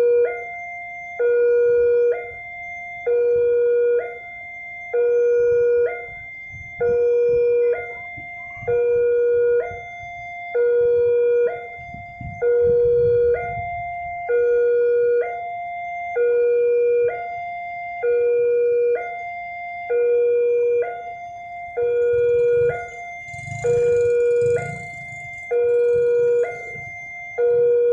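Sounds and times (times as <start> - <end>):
level crossing alarm two-tone: 21.1 - 27.9
faint low rumble: 21.8 - 27.1.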